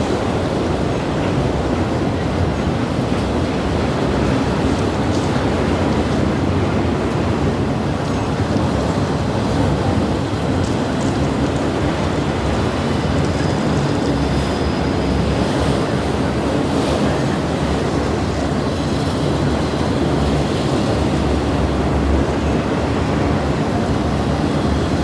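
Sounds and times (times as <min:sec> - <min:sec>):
train passing rumble: 0:00.0 - 0:25.0.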